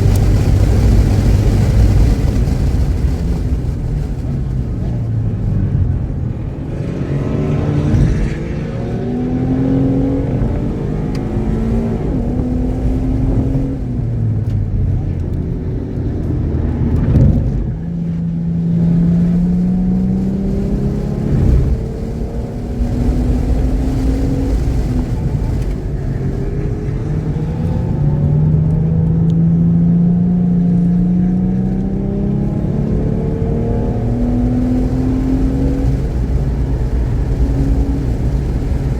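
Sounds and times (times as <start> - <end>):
car engine accelerating hard: 0.0 - 38.9
wind and road noise: 0.0 - 38.9.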